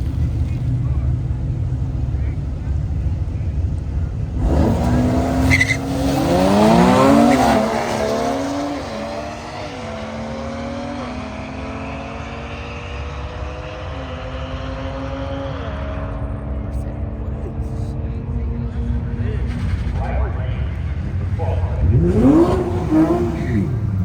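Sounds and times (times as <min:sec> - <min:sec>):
drag car accelerating: 0:00.0 - 0:24.0.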